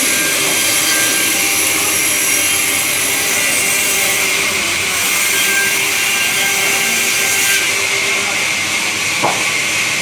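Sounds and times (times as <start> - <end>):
sawmill saw machinery running: 0.0 - 10.0.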